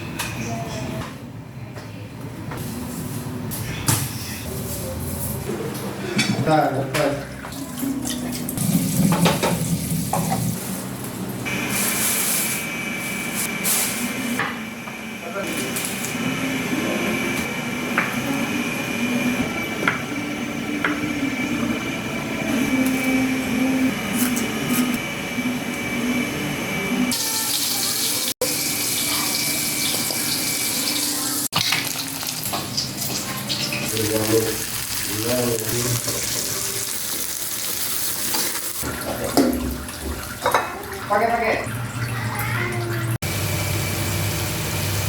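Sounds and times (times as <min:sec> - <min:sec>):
tap water running into sink: 0:07.4 - 0:10.6, 0:27.5 - 0:43.1.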